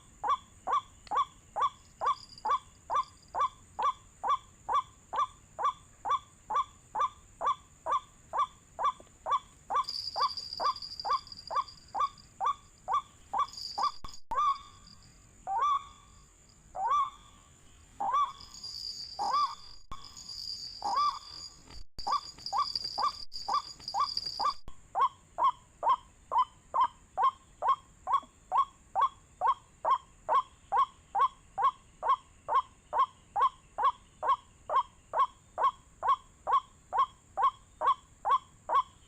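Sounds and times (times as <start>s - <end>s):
waterhen calling repeated notes: 0.2s - 16.2s, 16.8s - 39.0s
high insect buzz: 16.0s - 24.6s.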